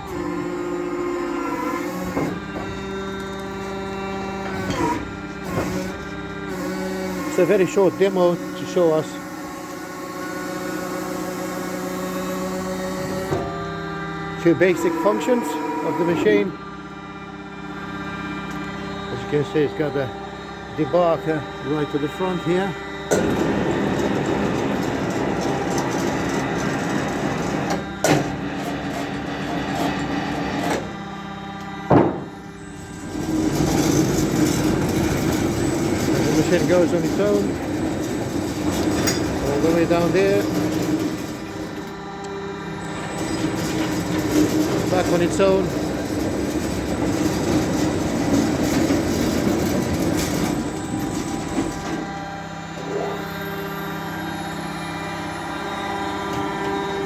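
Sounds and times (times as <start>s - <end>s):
band sawmill running: 0.0s - 57.0s
saw head rumbling and rattling: 22.2s - 30.8s, 31.9s - 42.2s, 42.8s - 52.2s
sharp metallic clunk: 31.9s - 32.4s.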